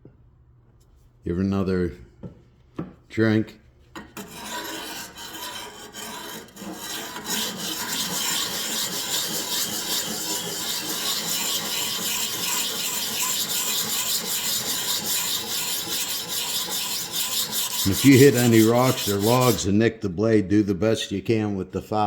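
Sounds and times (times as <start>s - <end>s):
blade rasping on sharpening stone: 4.0s - 19.6s.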